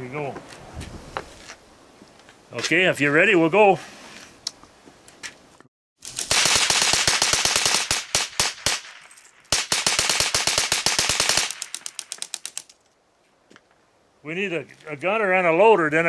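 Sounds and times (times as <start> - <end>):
gatling gun firing bursts: 6.1 - 12.7.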